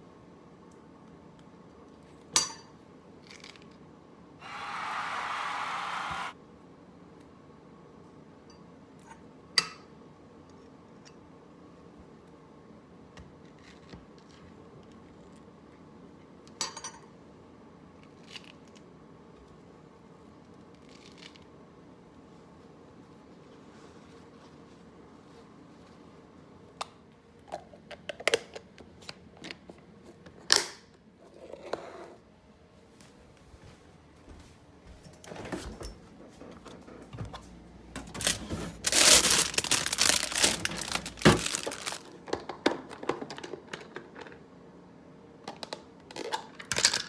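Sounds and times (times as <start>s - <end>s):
rustling or scraping: 35.0s - 42.1s
small hard objects clinking: 38.8s - 42.1s.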